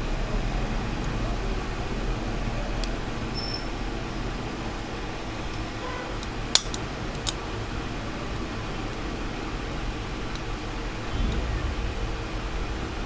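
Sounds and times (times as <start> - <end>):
fan whir with low hum: 0.0 - 13.0
sharp metal tool clicks: 5.5 - 7.5.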